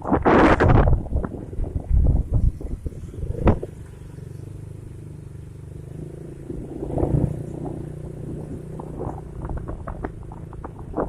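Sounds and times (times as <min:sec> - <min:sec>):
vehicle engine running: 0:00.8 - 0:11.0.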